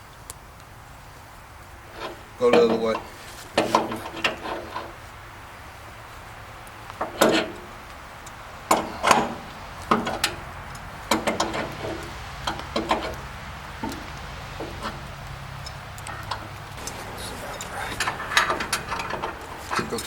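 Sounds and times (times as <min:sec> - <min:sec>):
tools knocking and clanking on metal: 0:01.8 - 0:05.0, 0:06.9 - 0:07.9, 0:08.6 - 0:20.0
steady low hum: 0:12.5 - 0:20.0.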